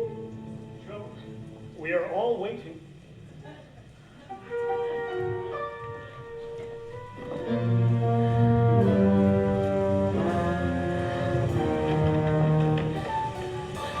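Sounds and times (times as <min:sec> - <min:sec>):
orchestra with brass chords: 0:04.3 - 0:14.0.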